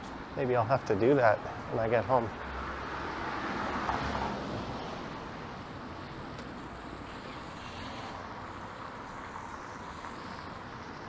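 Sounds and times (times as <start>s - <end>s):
car tyres hissing on wet road: 5.7s - 11.0s.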